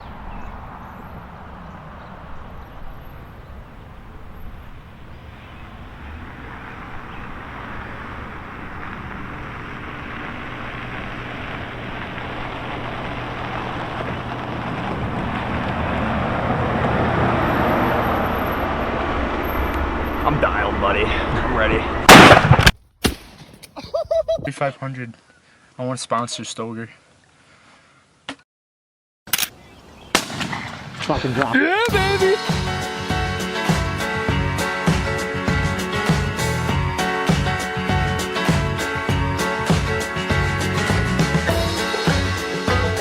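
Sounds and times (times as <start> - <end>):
motor vehicle running: 0.6 - 22.1, 31.9 - 43.0.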